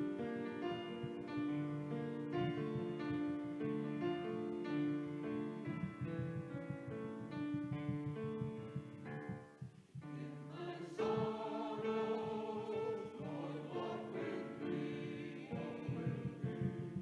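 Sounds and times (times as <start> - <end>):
instrumental church music: 0.0 - 17.0
voices singing with accompaniment: 10.0 - 17.0.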